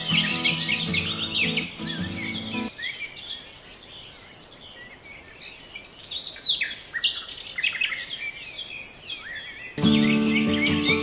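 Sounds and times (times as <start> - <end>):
birds chirping and calling: 0.0 - 11.0
background music: 9.8 - 11.0.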